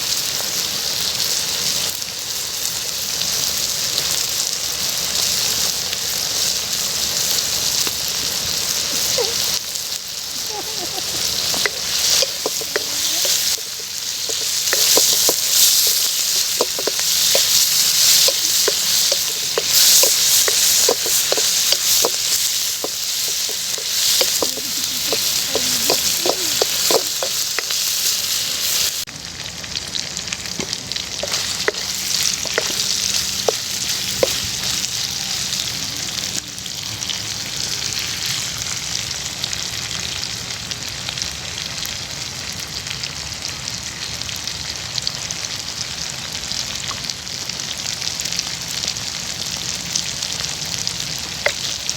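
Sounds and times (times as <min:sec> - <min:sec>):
liver sizzling in hot oil: 0:00.0 - 0:51.9
oil clicking and popping: 0:10.5 - 0:29.0, 0:30.6 - 0:34.7.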